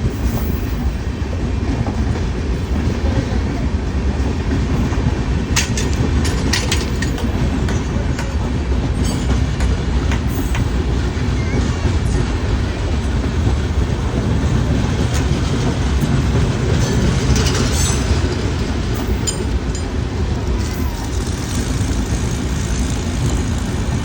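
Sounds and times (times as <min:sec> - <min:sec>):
train rumbling along tracks: 0:00.0 - 0:24.0
sharp metallic sounds: 0:16.8 - 0:24.0.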